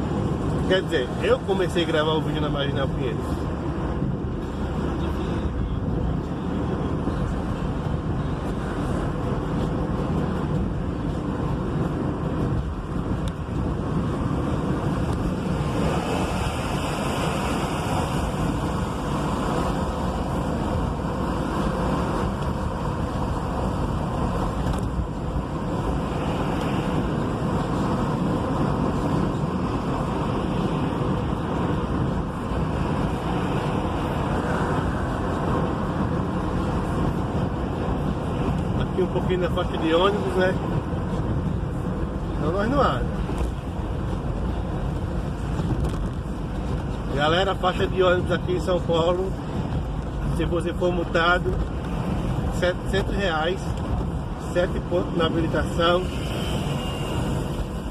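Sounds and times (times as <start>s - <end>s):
road traffic drone: 0.0s - 57.9s
wind through open window: 0.0s - 57.9s
vehicle passing close by: 14.1s - 24.6s.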